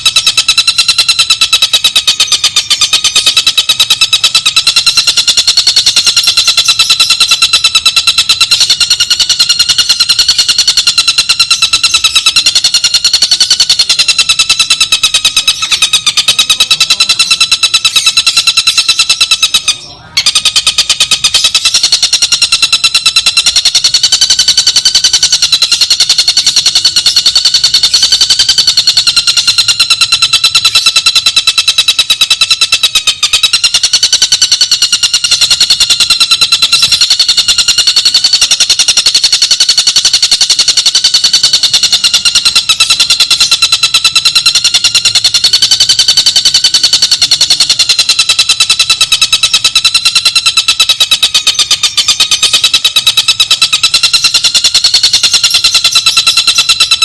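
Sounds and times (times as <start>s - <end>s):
kingfisher rattling trill: 0.0s - 57.0s.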